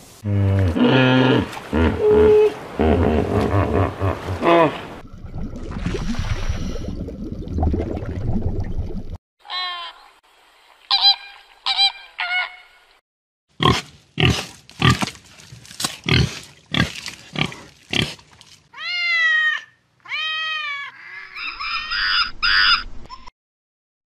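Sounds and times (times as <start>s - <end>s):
pigs grunting: 16.0s - 18.2s.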